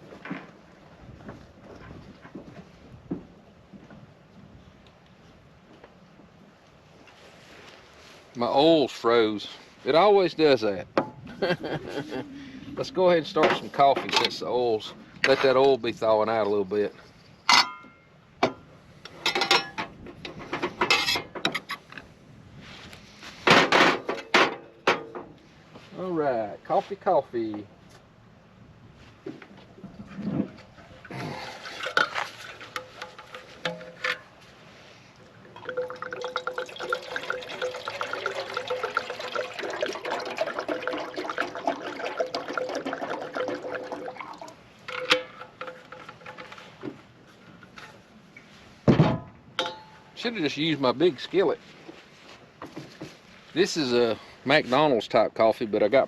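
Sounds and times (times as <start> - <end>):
metal cookware clinking and knocking: 17.5 - 18.6, 19.2 - 19.9, 49.0 - 50.0
water pouring into percolator: 35.5 - 46.5.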